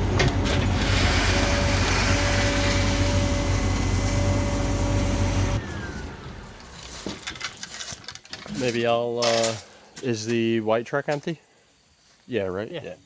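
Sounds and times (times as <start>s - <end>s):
construction machine engine running: 0.0s - 6.8s.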